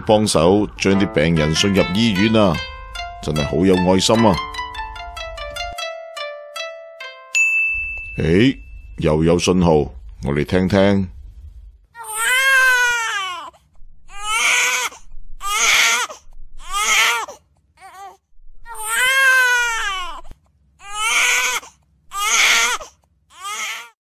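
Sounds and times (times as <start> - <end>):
baby crying: 12.0 - 24.0.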